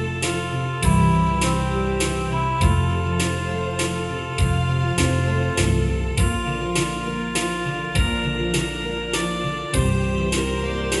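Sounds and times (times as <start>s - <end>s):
bass: 0.0s - 11.0s
keyboard chords: 0.0s - 11.0s
drum beat: 4.4s - 11.0s.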